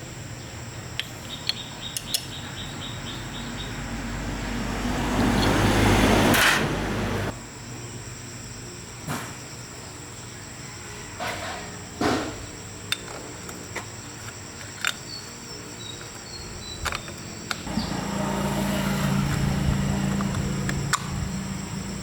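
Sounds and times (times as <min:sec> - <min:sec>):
steady mechanical hum: 0:00.0 - 0:22.0
metal tools clicking and knocking: 0:01.0 - 0:02.3, 0:12.9 - 0:17.7.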